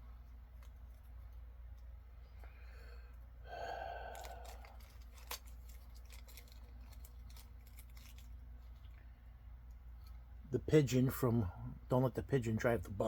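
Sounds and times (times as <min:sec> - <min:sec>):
packaging rustling and clicking: 0:04.1 - 0:09.0.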